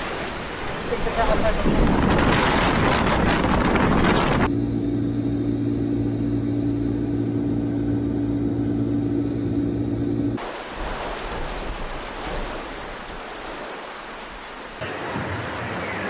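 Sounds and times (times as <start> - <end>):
strong wind blasting microphone: 0.4 - 4.5
low mechanical hum: 4.4 - 10.4.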